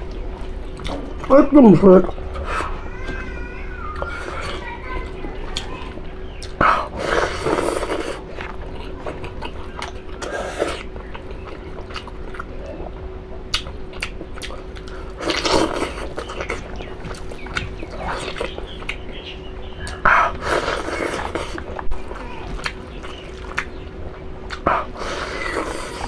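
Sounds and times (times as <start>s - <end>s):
chewing: 0.0s - 1.3s, 4.0s - 26.0s
wet mouth clicks: 24.5s - 25.8s.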